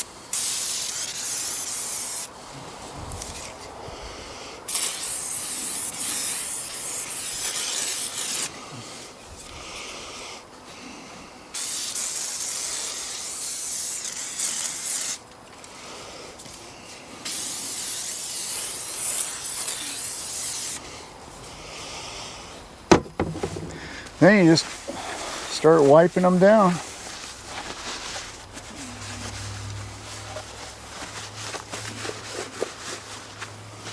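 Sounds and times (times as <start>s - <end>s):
aerosol can spraying: 0.0s - 2.3s, 4.7s - 8.6s, 11.5s - 15.2s, 17.2s - 20.8s.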